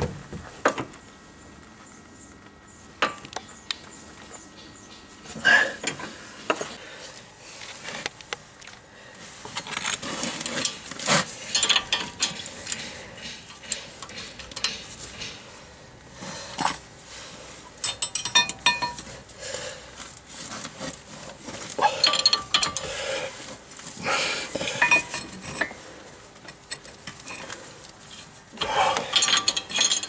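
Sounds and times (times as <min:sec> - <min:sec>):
metal tools clinking: 0:11.5 - 0:12.8, 0:17.8 - 0:19.1, 0:21.8 - 0:22.9, 0:24.8 - 0:25.8, 0:28.6 - 0:30.0.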